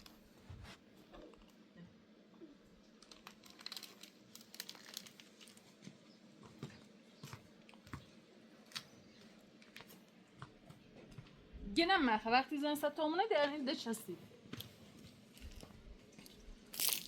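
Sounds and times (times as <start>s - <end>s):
small objects clicking and crinkling: 2.8s - 5.9s, 15.3s - 17.0s.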